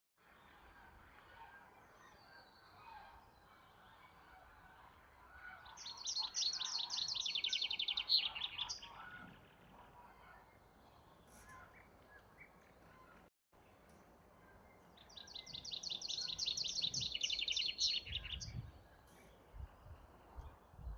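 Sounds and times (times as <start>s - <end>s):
songbird trill: 5.6s - 9.6s, 13.7s - 19.7s.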